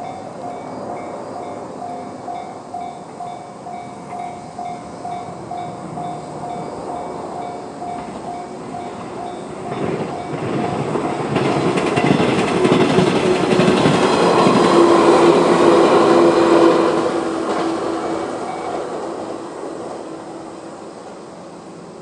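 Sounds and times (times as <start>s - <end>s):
crossing warning bell ringing: 0.0s - 19.1s
train wheels clattering over rail joints: 2.8s - 20.0s.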